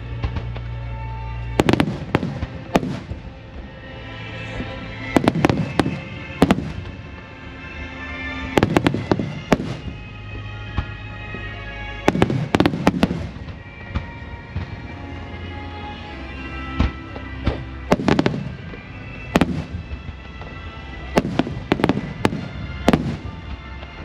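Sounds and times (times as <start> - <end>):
music playing: 0.0 - 24.0
fireworks bursting: 1.4 - 3.7, 5.0 - 7.3, 8.4 - 14.9, 16.7 - 24.0.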